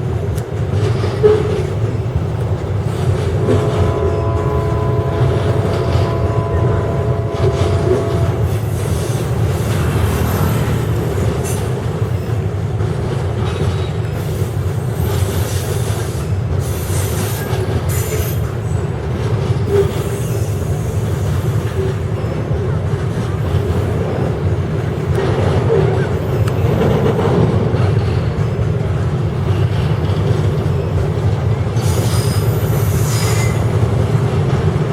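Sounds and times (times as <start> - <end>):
train wagons rumbling: 0.0 - 34.9
train wheel squeals: 3.5 - 12.7, 13.5 - 22.5, 29.4 - 34.8.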